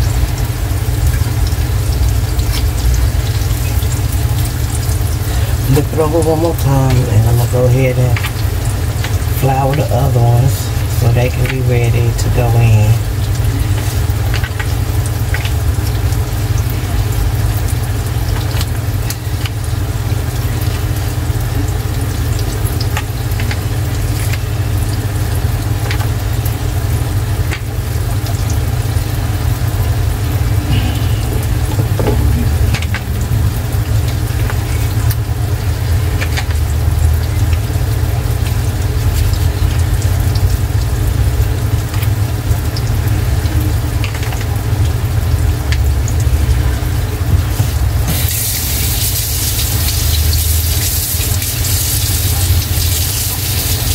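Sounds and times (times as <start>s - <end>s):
food frying in oil: 0.0s - 53.9s
loud low hum: 26.3s - 48.8s.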